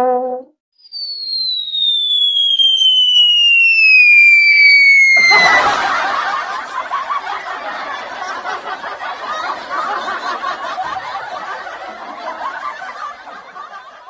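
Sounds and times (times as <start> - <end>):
cartoon falling whistle: 0.0 - 6.2
canned laughter: 5.2 - 14.0.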